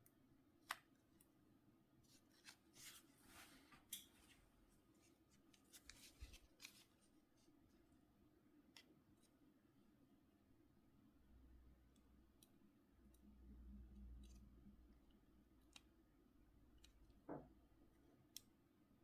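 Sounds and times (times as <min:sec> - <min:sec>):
small clicks and taps: 0:16.7 - 0:17.6.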